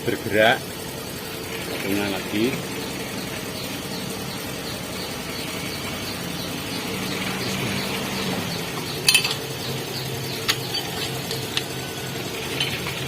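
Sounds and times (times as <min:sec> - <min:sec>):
metal tools clinking: 0:09.0 - 0:09.6, 0:10.4 - 0:11.7, 0:12.4 - 0:13.0.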